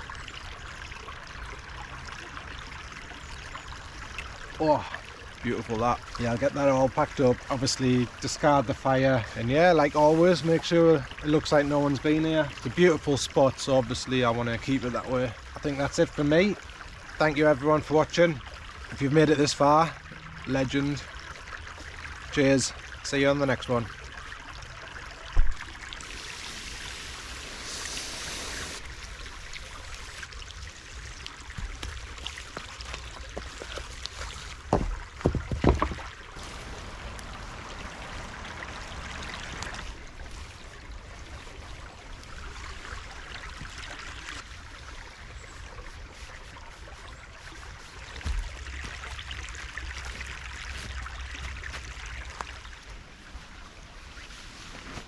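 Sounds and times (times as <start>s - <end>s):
stream running: 0.0s - 55.0s.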